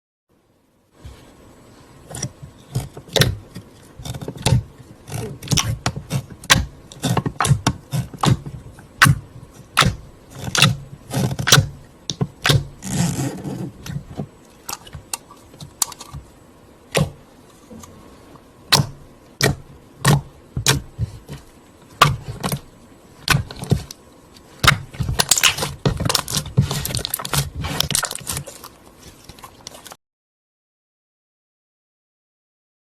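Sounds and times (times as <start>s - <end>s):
packaging scraping and crinkling: 24.9s - 30.0s.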